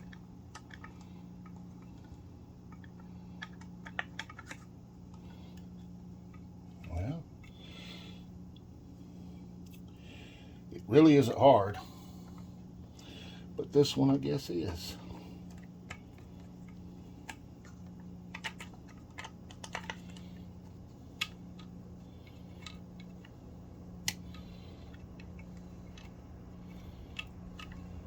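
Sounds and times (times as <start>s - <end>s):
pump parts clicking and tapping: 0.0s - 5.6s, 14.7s - 20.4s.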